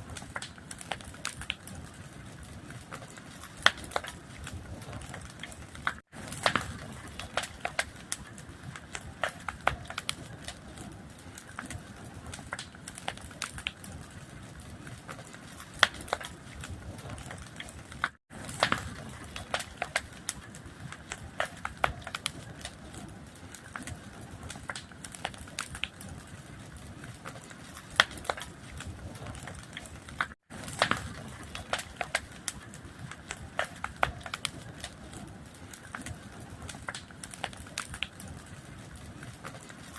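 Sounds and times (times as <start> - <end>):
fire crackling and popping: 0.0 - 39.9.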